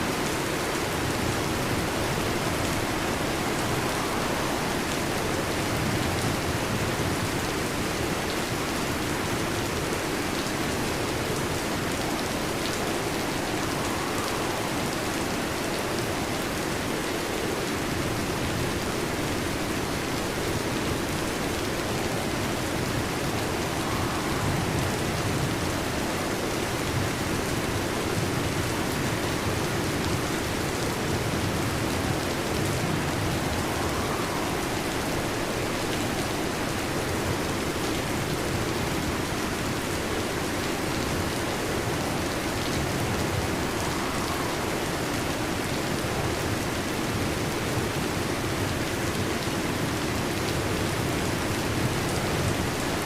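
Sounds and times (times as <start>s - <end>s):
heavy rain: 0.0s - 53.0s.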